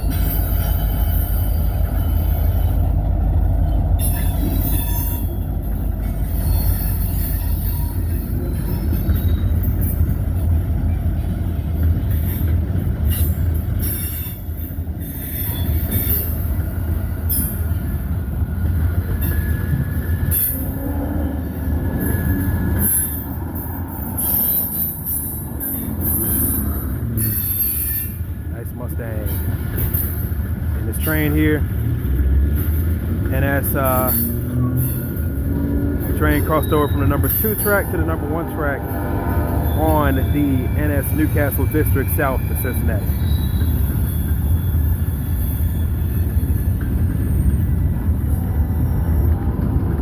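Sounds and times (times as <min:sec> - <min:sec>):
freight train rumbling past: 0:00.0 - 0:50.0
high-pitched wheel squeal: 0:19.2 - 0:28.4, 0:33.3 - 0:49.5.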